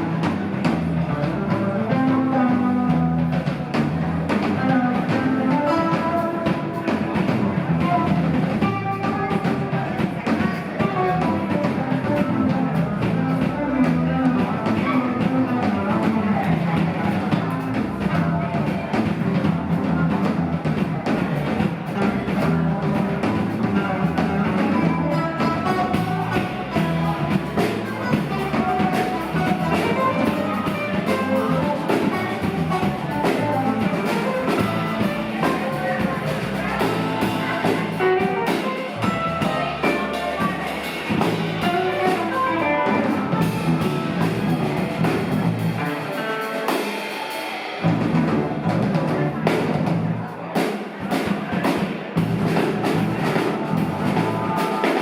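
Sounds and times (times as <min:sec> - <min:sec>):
bass guitar: 0:00.0 - 0:46.9, 0:47.7 - 0:50.4, 0:51.0 - 0:55.0
electric guitar: 0:00.0 - 0:50.0
drum kit: 0:00.0 - 0:55.0.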